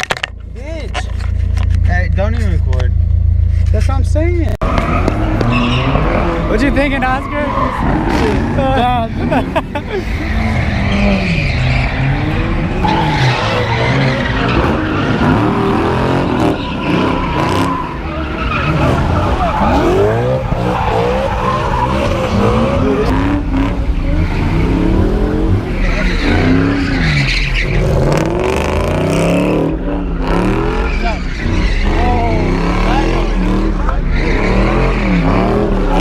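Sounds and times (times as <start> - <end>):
car engines revving hard: 3.7 - 36.0
tyres squealing: 4.6 - 9.2, 9.9 - 23.3, 24.0 - 36.0.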